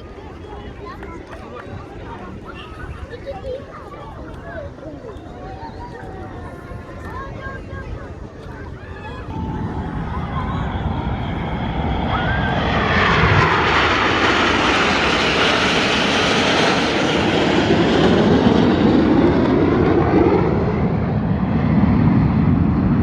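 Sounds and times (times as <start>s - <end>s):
jet aircraft flying past: 8.1s - 23.0s.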